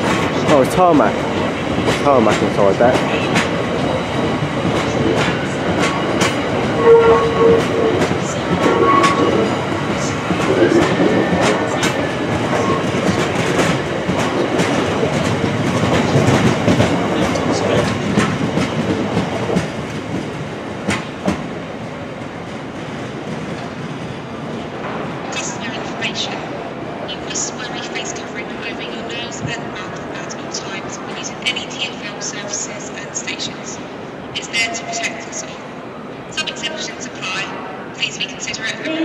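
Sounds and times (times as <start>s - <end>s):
train wheels clacking over rail joints: 0.0s - 25.0s
freight train rumble: 0.0s - 39.0s
train wheel squeals: 6.7s - 9.6s.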